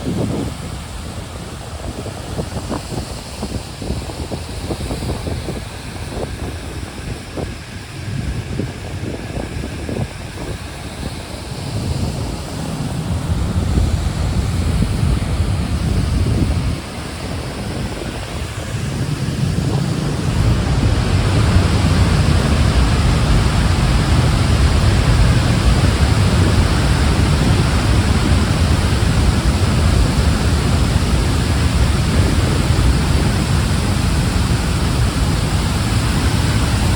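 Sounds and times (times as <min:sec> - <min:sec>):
wind rumbling on microphone: 0:00.0 - 0:36.9
waterfall rushing: 0:16.8 - 0:36.9.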